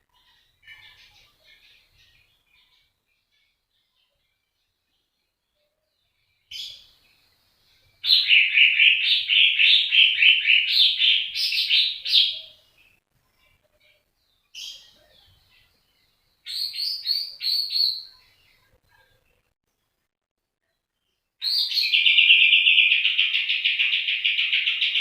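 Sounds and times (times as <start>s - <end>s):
songbird chirping: 0.0s - 25.0s.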